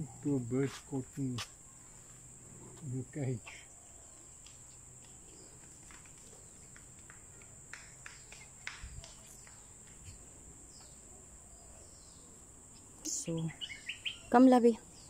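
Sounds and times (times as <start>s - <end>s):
faint clicks and chirps: 4.0s - 11.0s.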